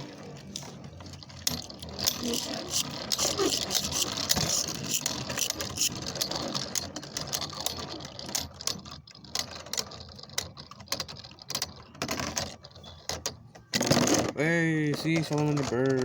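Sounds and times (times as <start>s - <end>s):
spinning tops clashing and rattling: 1.5s - 6.4s.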